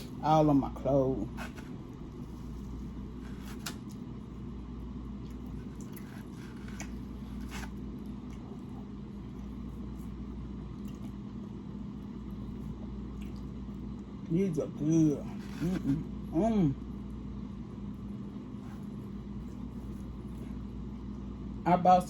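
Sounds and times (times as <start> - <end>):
low hum: 0.0 - 22.0
person chewing food: 1.3 - 14.2.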